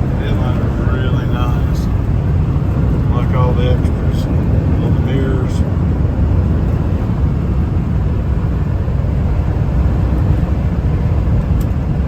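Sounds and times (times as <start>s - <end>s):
truck engine drone: 0.0s - 12.0s
tyre road rumble: 0.0s - 12.0s.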